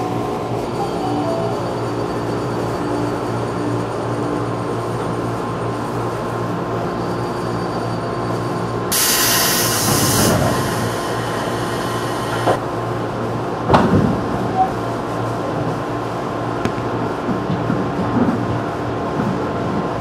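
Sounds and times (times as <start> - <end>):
train carriage hum: 0.0 - 20.0
hiss of air: 8.9 - 12.6.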